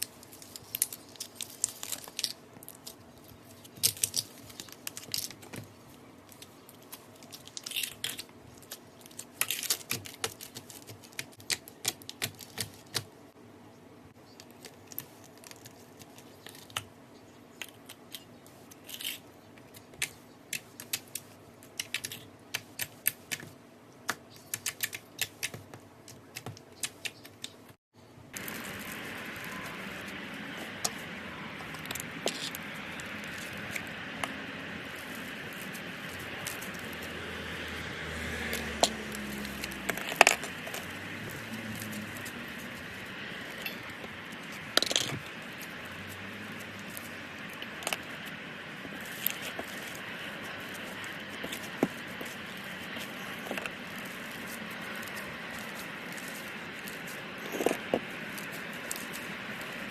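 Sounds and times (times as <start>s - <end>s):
steady hiss with pops: 19.5s - 59.9s.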